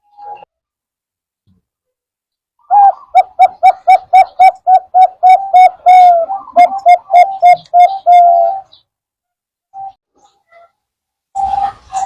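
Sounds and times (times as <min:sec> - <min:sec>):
dove cooing: 0:02.6 - 0:08.8.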